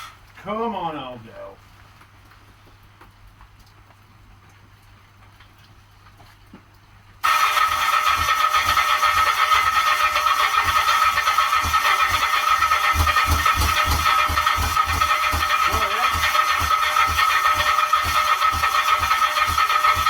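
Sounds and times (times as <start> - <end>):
motorcycle engine cranking: 7.2 - 20.0.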